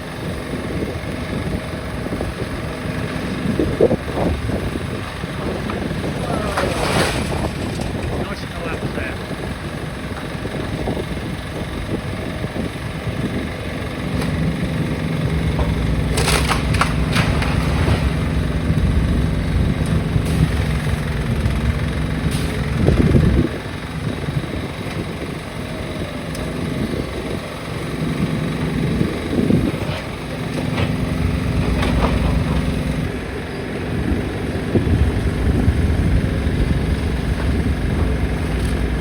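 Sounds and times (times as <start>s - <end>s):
diesel engine running: 0.0s - 39.0s
sharp clattering knocks: 15.1s - 22.8s.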